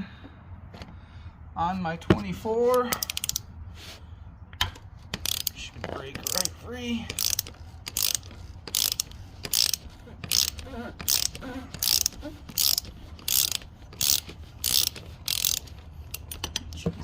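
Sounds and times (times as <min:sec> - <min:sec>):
ratchet wrench clicking: 0:02.8 - 0:03.4, 0:05.1 - 0:16.8.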